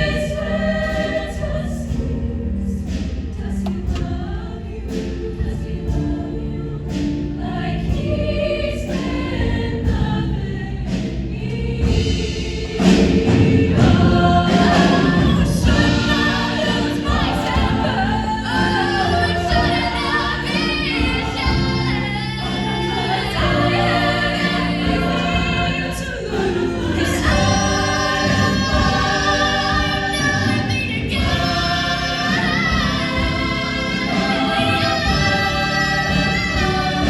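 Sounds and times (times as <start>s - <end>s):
choir singing in harmony: 0.0s - 37.0s.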